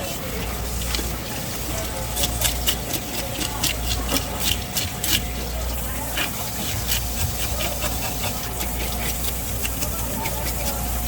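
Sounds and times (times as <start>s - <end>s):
knife scraping fish: 0.0s - 11.0s.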